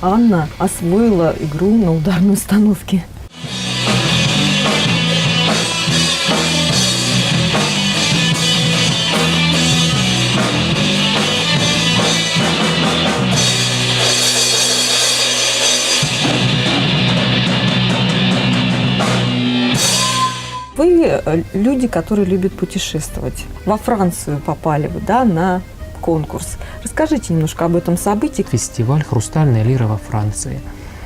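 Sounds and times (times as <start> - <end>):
rock band playing live: 3.3 - 20.7
drum kit beat: 3.3 - 21.6
sustained bass notes: 3.3 - 30.5.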